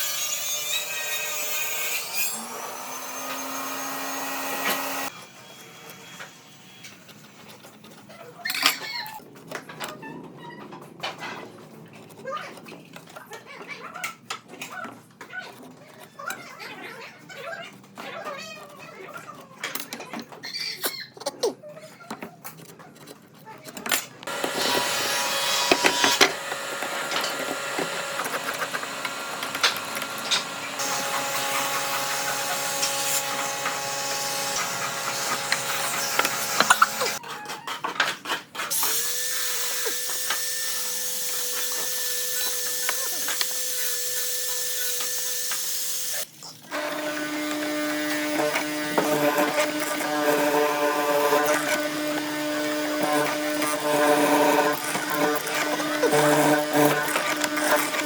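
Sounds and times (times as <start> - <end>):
power tool whining: 0.0 - 6.0, 24.2 - 37.2, 38.7 - 58.0
lower power tool whine: 2.4 - 5.2, 24.3 - 37.2, 38.8 - 58.0.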